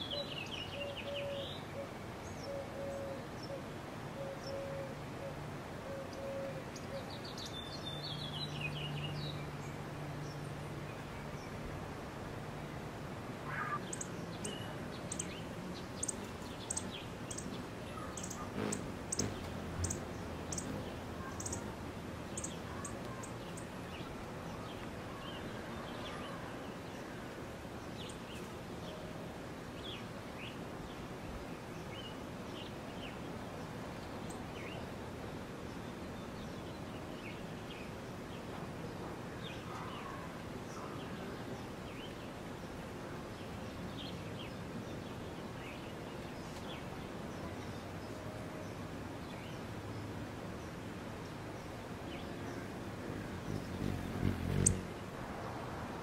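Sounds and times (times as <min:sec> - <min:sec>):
outdoor background hiss: 0:00.0 - 0:56.0
small birds chirping: 0:13.5 - 0:27.1, 0:35.6 - 0:55.2.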